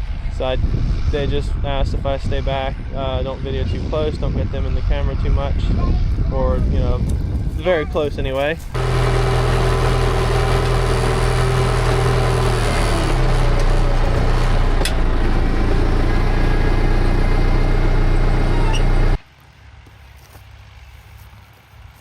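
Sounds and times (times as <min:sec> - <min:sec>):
tractor engine running: 0:08.4 - 0:22.0.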